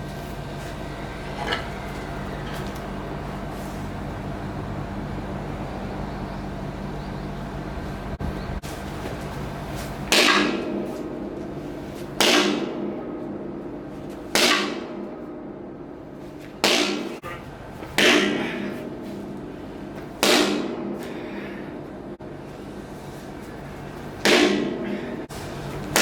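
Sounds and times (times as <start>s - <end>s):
wooden mallet heavy blows: 10.1s - 11.2s, 16.6s - 19.0s, 24.2s - 25.3s.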